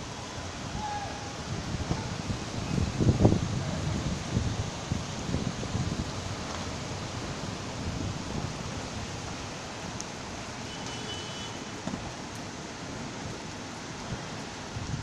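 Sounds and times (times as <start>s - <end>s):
wind buffeting microphone: 0.0s - 9.9s, 14.1s - 15.0s
heavy rain: 0.0s - 15.0s.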